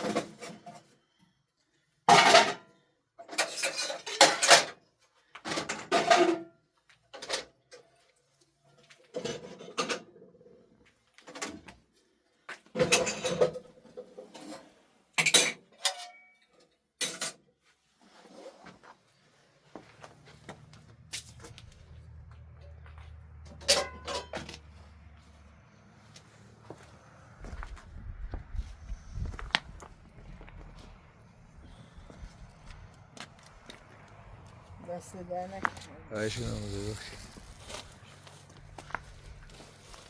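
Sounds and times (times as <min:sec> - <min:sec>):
metal dishes and pots clattering: 0:02.1 - 0:04.8, 0:05.5 - 0:06.5, 0:09.2 - 0:10.2, 0:12.8 - 0:16.4, 0:17.0 - 0:17.4, 0:23.6 - 0:24.5.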